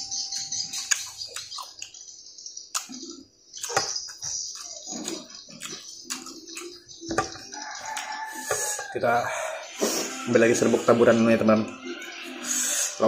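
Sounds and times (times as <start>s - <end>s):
chewing and lip smacking: 0.3s - 2.1s, 2.7s - 8.2s
high-pitched hiss: 8.3s - 11.4s, 12.4s - 13.0s.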